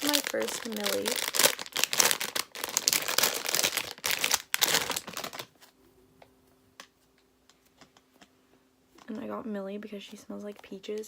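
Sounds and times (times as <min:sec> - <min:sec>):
plastic packaging crinkling: 0:00.0 - 0:05.8
faint steady hum: 0:00.0 - 0:11.0.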